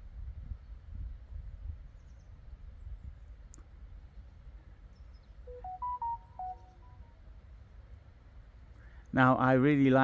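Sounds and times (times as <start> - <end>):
faint high bird chirps: 5.5 - 7.1.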